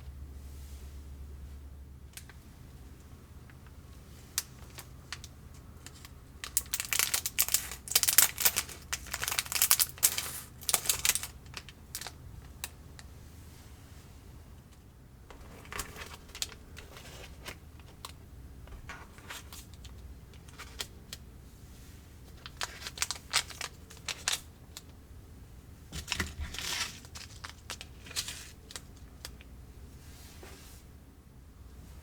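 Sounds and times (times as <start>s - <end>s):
plastic packaging crinkling: 4.4s - 12.2s, 22.4s - 24.9s, 26.0s - 28.9s.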